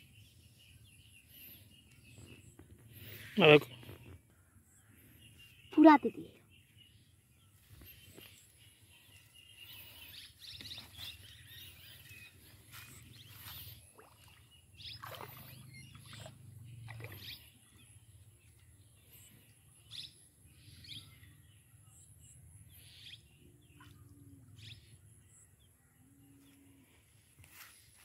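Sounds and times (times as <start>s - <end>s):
bird chirps: 0.0s - 18.3s.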